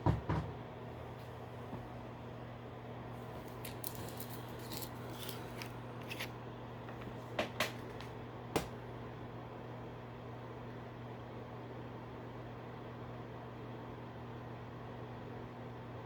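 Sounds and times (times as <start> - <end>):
low electrical hum: 0.0 - 16.0
small items clicking and rattling: 3.4 - 6.3.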